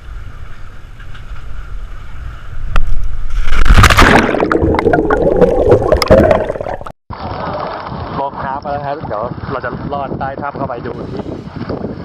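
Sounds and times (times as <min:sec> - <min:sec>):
water splashing: 0:03.3 - 0:09.4
wind on microphone: 0:07.1 - 0:12.0.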